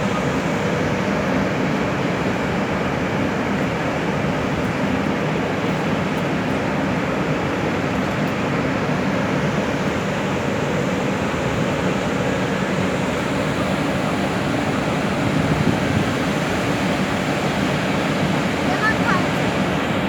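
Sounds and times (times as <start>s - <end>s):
train running: 11.4s - 20.0s.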